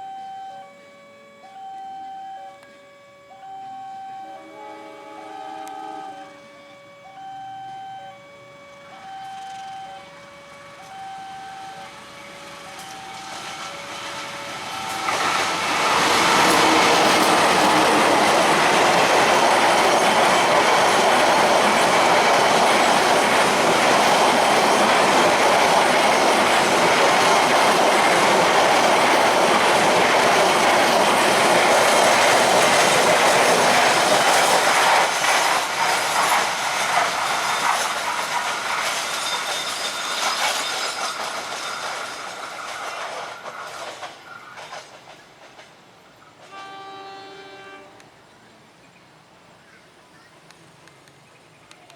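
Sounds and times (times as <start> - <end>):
level crossing alarm two tones: 0.0 - 29.8
train wheels rushing on rail: 8.8 - 48.1.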